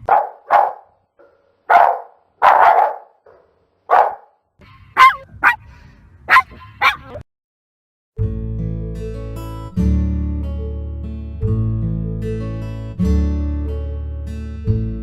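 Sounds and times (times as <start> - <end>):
dog yipping: 0.0 - 4.3, 5.0 - 5.6, 6.3 - 7.2
dog barking: 0.0 - 4.4, 5.0 - 5.6, 6.3 - 7.2.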